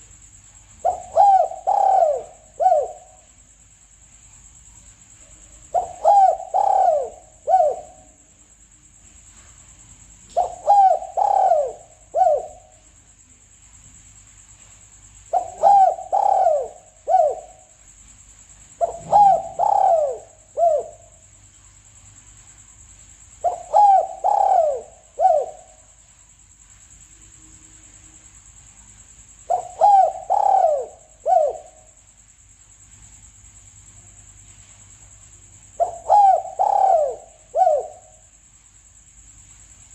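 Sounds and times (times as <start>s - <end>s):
dove cooing: 0.8s - 3.2s, 5.6s - 8.2s, 10.3s - 12.8s, 15.3s - 17.7s, 18.8s - 21.2s, 23.4s - 26.0s, 29.4s - 31.9s, 35.8s - 38.2s.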